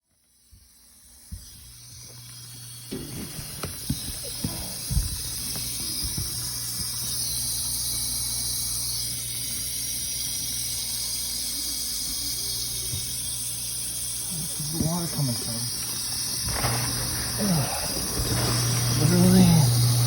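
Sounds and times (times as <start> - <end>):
dishwasher pump humming: 0.0 - 20.0.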